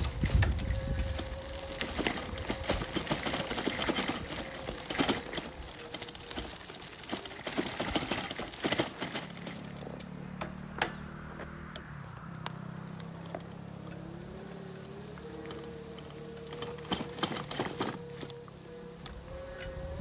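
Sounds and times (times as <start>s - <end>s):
rapid clicks and crackles: 0.0s - 10.4s, 14.7s - 19.2s
low engine-like hum: 0.0s - 20.0s.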